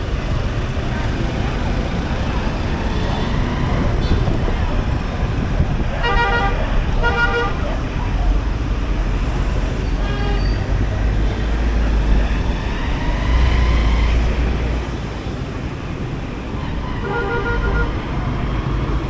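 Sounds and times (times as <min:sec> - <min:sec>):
road traffic rumble: 0:00.0 - 0:19.0
vehicle horn honking: 0:06.0 - 0:07.6, 0:16.8 - 0:18.0.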